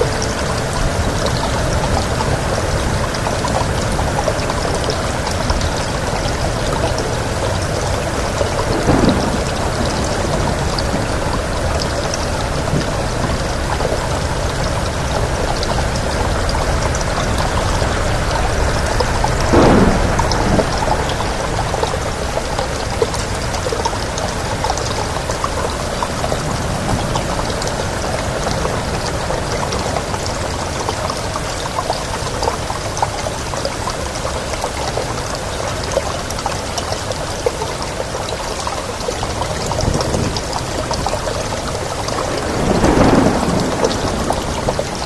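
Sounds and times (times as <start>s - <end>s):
hiss of running water: 0.0s - 15.4s, 35.4s - 45.0s
rain drops ticking: 0.0s - 45.0s
low rumble: 16.2s - 23.1s.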